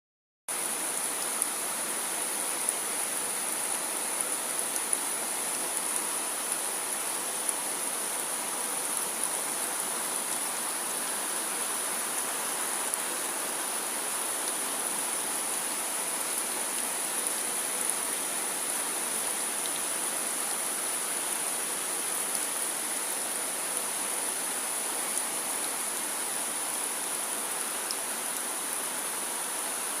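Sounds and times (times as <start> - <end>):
steady rain falling: 0.5 - 30.0.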